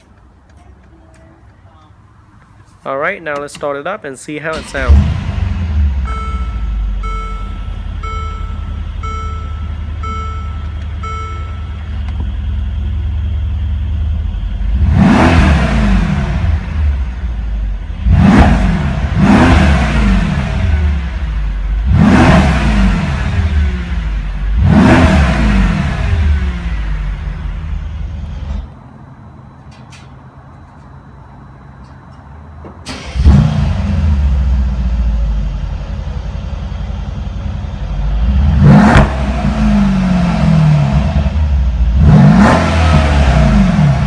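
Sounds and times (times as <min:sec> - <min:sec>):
car engine idling: 0:00.0 - 0:44.0
engine revving: 0:04.5 - 0:10.4, 0:12.5 - 0:28.7, 0:32.9 - 0:44.0
repeating beep: 0:06.0 - 0:11.8.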